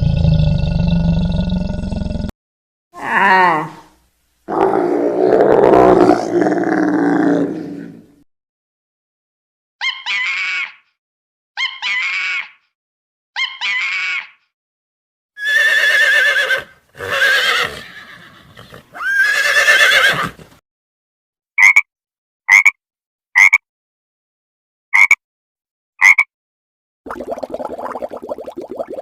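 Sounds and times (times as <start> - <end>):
horse whinnying: 15.4 - 20.5.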